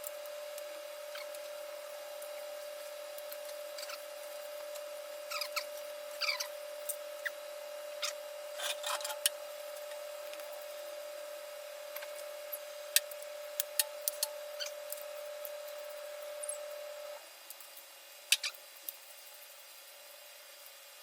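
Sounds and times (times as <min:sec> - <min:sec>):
high electrical hum: 0:00.0 - 0:21.0
tools rubbing and scraping: 0:08.0 - 0:09.3.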